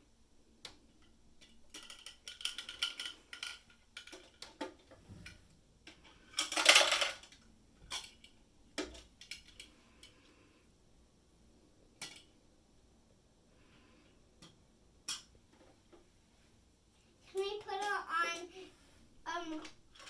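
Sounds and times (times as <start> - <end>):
plastic toy pieces clattering: 1.4 - 4.9, 6.0 - 9.7, 19.4 - 20.0.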